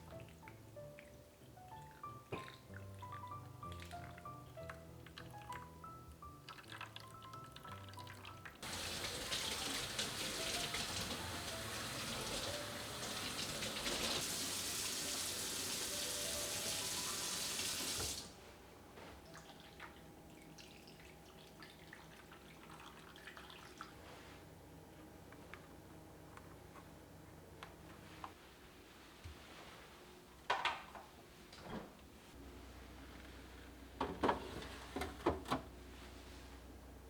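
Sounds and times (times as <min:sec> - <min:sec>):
tap water running into sink: 0:08.6 - 0:18.3.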